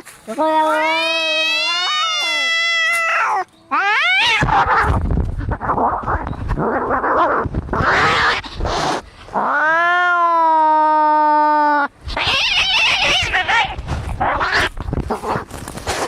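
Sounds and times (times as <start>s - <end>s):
cats fighting: 0.4s - 10.8s, 12.0s - 16.0s
cat hissing: 7.8s - 9.6s, 12.1s - 16.0s.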